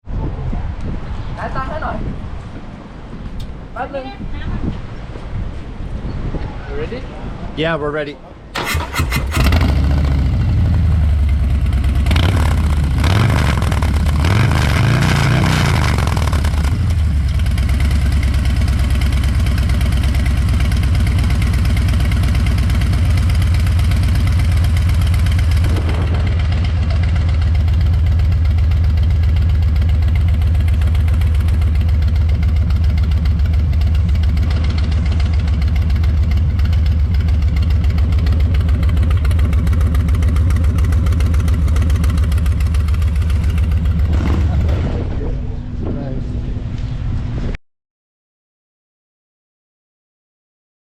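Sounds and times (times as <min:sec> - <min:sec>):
motorcycle engine idling: 0:08.6 - 0:14.2, 0:16.1 - 0:44.8
motorcycle throttle blips: 0:08.6 - 0:45.8.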